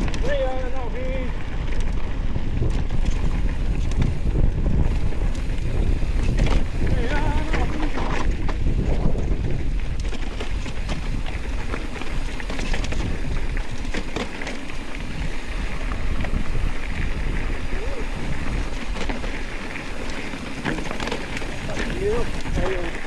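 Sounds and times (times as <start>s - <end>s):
bicycle clicks and rattles: 0.0s - 23.0s
wind buffeting microphone: 0.0s - 23.0s.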